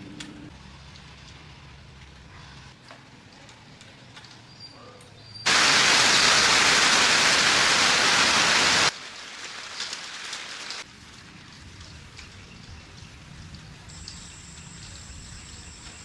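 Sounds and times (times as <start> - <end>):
loud steady hiss: 5.5 - 11.8, 12.8 - 16.0.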